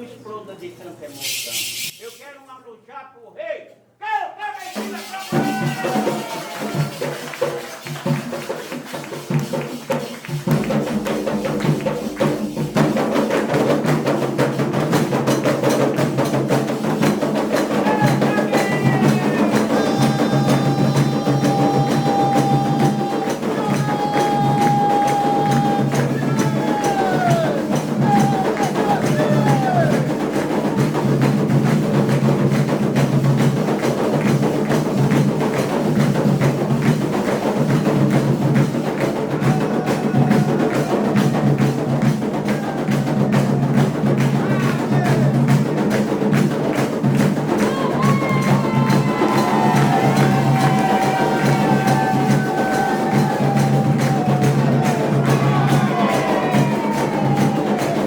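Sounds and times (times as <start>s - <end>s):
drum and percussion playing: 1.1s - 2.4s, 4.6s - 58.0s
fast hand-clapping: 4.8s - 58.0s
voices singing: 17.7s - 30.8s, 47.6s - 58.0s.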